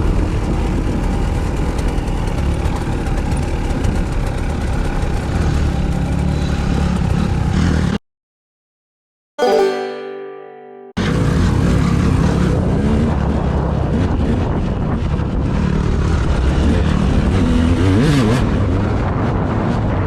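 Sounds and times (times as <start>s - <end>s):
short musical sting: 9.4s - 11.1s.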